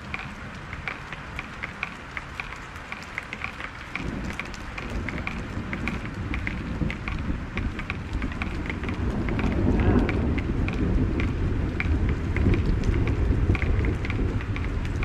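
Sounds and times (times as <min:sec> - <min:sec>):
heavy rain: 0:00.0 - 0:15.0
raindrops pattering: 0:00.0 - 0:15.0
low thunder rumble: 0:04.0 - 0:15.0.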